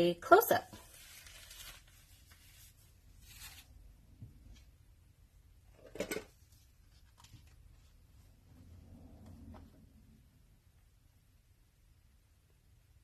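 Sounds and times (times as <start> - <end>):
faint handling sounds: 0.6 - 4.8, 5.7 - 10.1.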